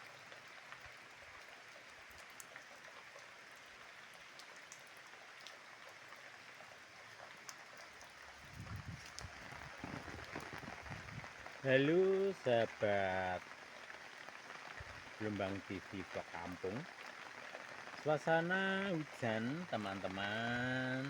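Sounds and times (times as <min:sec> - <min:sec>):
sharp drip ticks: 0:04.3 - 0:06.0, 0:07.4 - 0:08.2
heavy rain hissing: 0:08.3 - 0:21.0.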